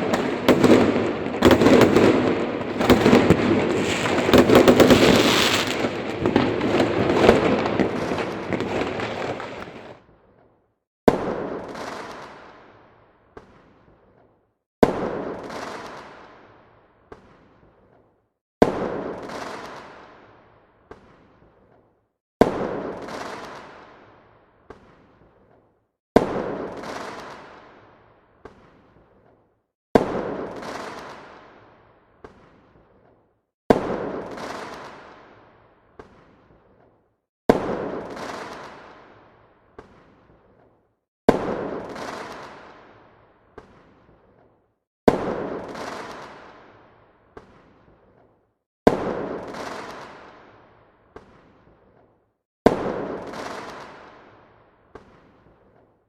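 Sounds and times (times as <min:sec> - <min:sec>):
firework bangs: 0:00.0 - 0:10.0.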